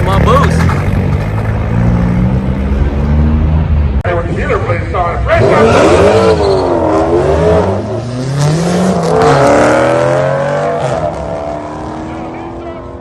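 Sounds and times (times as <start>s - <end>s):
engine revving hard: 5.3s - 12.3s.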